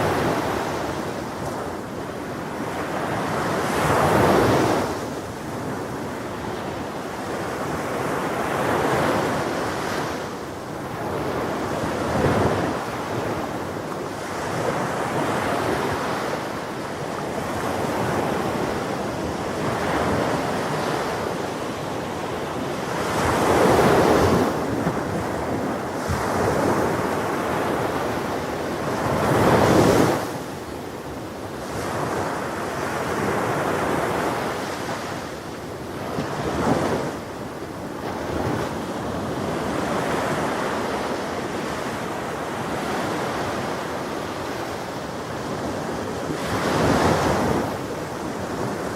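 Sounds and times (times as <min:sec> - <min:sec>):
ocean waves breaking on shore: 0:00.0 - 0:48.9
wind buffeting microphone: 0:17.1 - 0:30.5.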